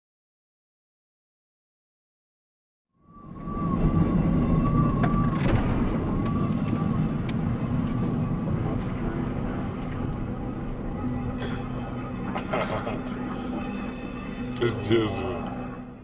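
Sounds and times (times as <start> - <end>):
vehicle engine and road noise: 3.4 - 16.0
wavering high tone: 10.3 - 16.0.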